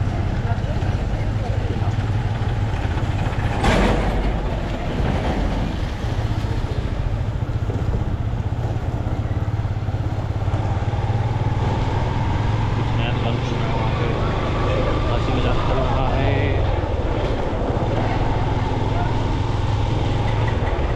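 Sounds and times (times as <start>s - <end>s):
motorcycle engine running: 0.0s - 20.9s
road and wind noise: 0.0s - 20.9s.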